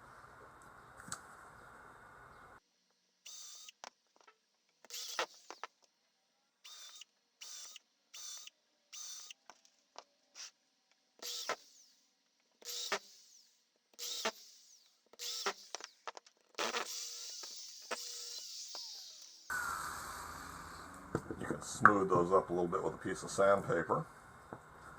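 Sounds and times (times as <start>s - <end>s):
power tool motor whirring: 3.2s - 5.9s, 6.6s - 10.6s, 11.2s - 21.2s.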